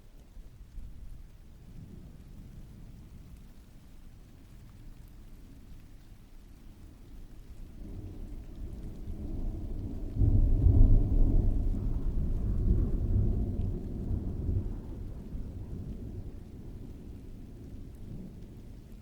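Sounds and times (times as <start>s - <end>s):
steady rain: 0.0s - 19.0s
distant thunder rolling: 7.7s - 19.0s.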